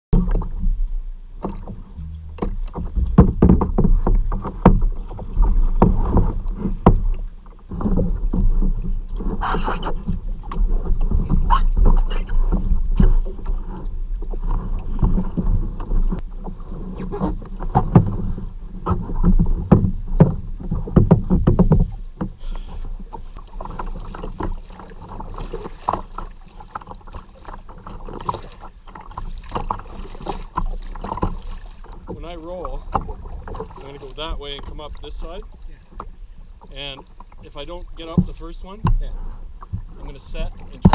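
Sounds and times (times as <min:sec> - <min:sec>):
low microphone rumble: 0:00.2 - 0:26.4
water splashing around a kayak: 0:00.2 - 0:40.9.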